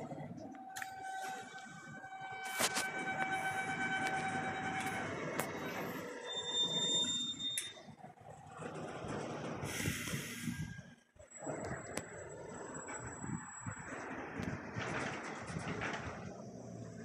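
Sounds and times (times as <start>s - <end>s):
train wheels rumbling on rails: 0.0s - 17.0s
high-pitched wheel squeal: 0.4s - 8.1s.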